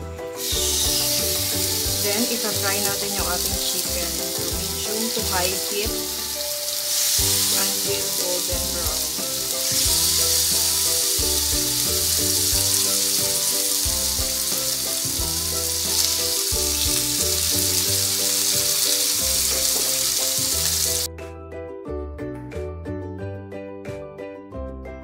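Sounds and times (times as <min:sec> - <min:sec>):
background music: 0:00.0 - 0:25.0
chicken sizzling in hot oil: 0:00.3 - 0:21.1.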